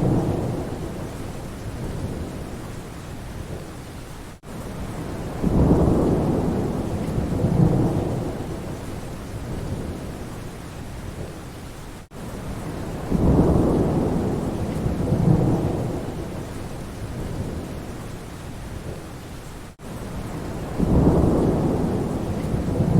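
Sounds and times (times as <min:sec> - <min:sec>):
low thunder rolls: 0:00.0 - 0:02.5, 0:05.3 - 0:10.2, 0:12.9 - 0:17.9, 0:20.2 - 0:22.9
steady rain falling: 0:00.0 - 0:22.9.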